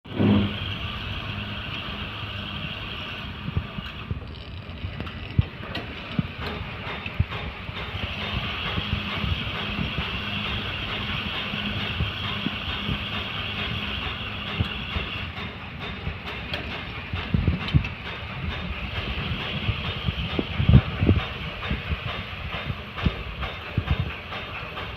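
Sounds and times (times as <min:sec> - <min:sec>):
airflow buffeting microphone: 0:00.0 - 0:24.9.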